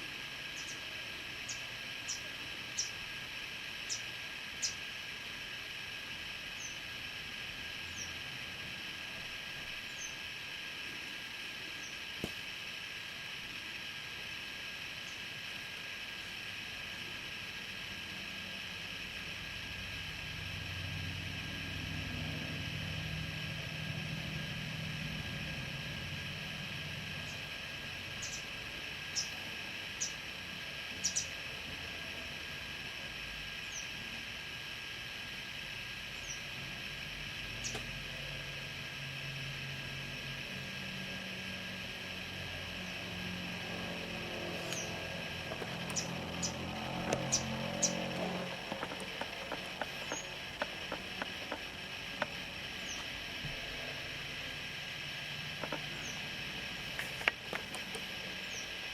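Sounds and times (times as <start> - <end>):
steady hiss: 0.0 - 58.9
vehicle engine humming: 0.0 - 58.9
nestling birds peeping: 0.4 - 3.0, 3.7 - 5.1, 9.7 - 10.5, 26.7 - 31.5, 37.5 - 37.9, 42.7 - 58.9.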